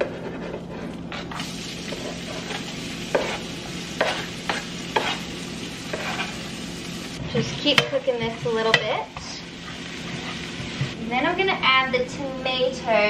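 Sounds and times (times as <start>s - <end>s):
kitchen utensils scraping and clicking: 0.0s - 5.3s, 5.9s - 6.5s
shallots and garlic sizzling in oil: 1.3s - 11.3s.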